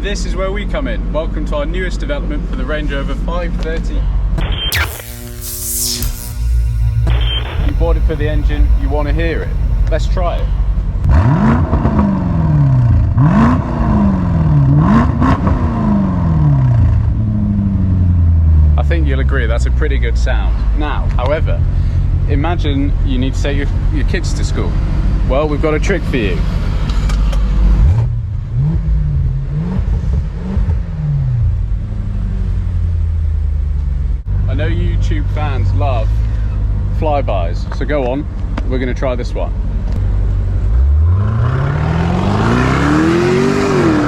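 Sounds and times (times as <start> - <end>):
car engine revving: 4.4 - 18.9, 40.0 - 44.0
car engine revving and idling: 5.4 - 37.2, 39.2 - 44.0.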